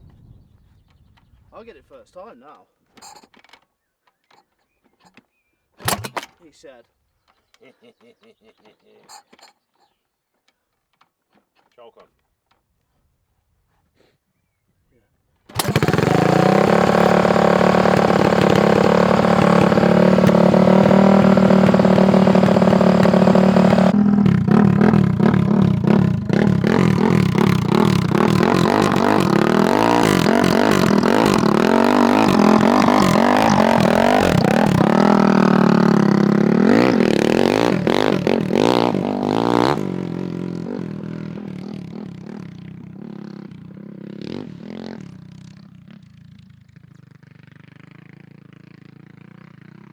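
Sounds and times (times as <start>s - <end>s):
go-kart engine revving: 5.8s - 6.3s, 15.5s - 49.9s.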